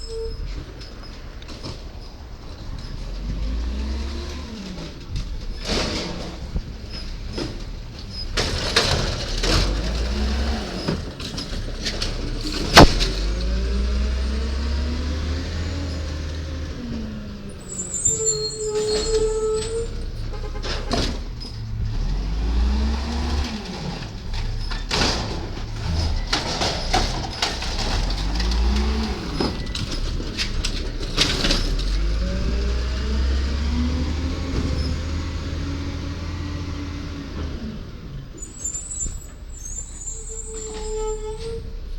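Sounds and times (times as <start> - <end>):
hydraulics running: 0.0 - 41.9
garbage truck engine revving: 1.4 - 41.9
metal clanks and knocks: 4.6 - 14.1, 16.9 - 22.2, 23.4 - 32.8
very loud bang: 12.6 - 13.4.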